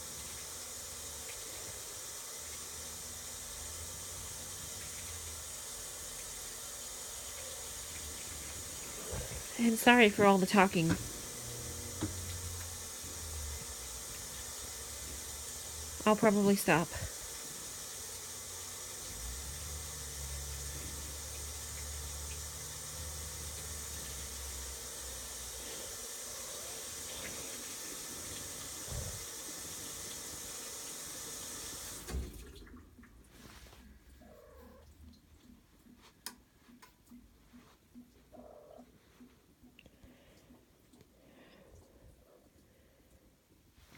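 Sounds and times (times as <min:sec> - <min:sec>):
washing machine running: 0:00.0 - 0:33.0.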